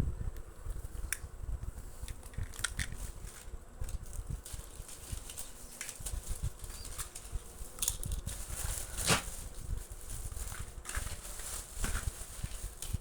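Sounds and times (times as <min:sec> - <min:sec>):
rustling: 0:01.8 - 0:13.0
toy cars being handled: 0:02.0 - 0:03.5.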